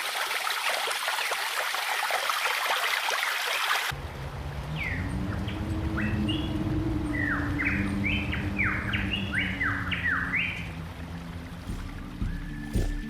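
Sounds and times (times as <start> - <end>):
birds whistling downward: 4.6 - 10.8, 11.6 - 13.0.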